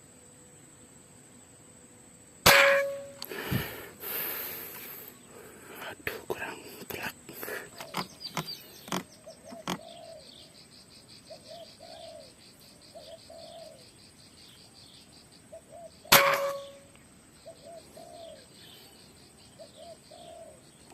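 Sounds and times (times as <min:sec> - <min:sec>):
fast insect trill: 0:00.0 - 0:17.6
air rifle shot: 0:02.5 - 0:03.8, 0:16.1 - 0:16.8
dove cooing: 0:06.1 - 0:10.5, 0:11.3 - 0:13.9, 0:17.4 - 0:18.8, 0:19.6 - 0:20.6.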